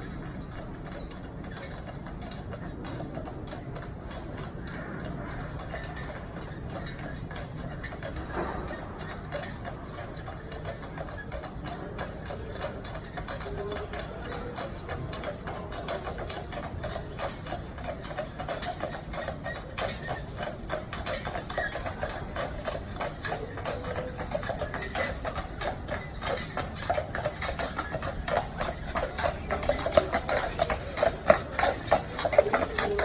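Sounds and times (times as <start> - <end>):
horse hooves clip-clopping: 0.0 - 33.0.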